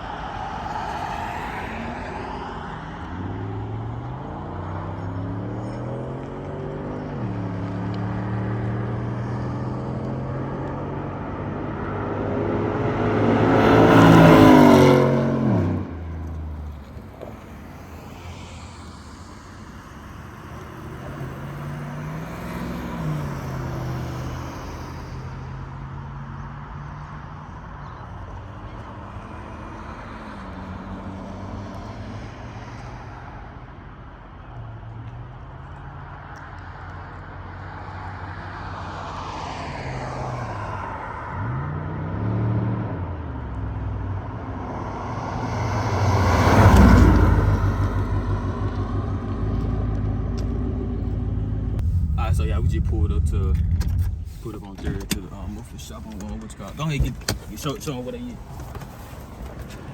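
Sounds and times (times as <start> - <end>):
car engine revving: 0.7 - 25.8, 41.4 - 59.9.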